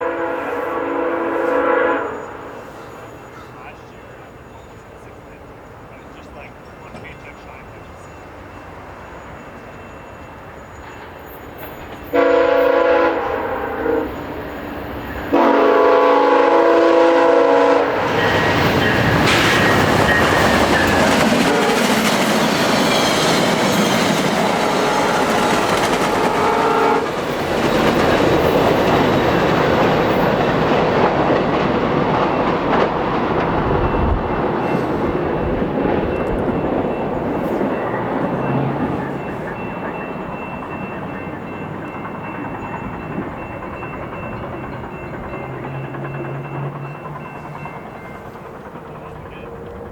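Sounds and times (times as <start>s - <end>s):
train horn blasts: 0.0s - 2.8s, 12.1s - 14.2s, 15.3s - 22.2s, 23.5s - 27.3s
rushing wheel and rail noise: 0.0s - 49.9s.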